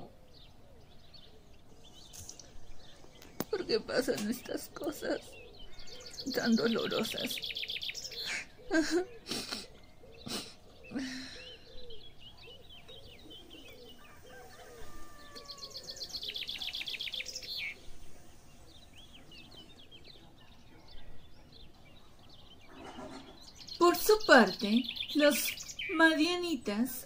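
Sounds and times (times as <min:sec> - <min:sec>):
birds chirping: 0:00.0 - 0:27.0
bird trill: 0:04.3 - 0:27.0.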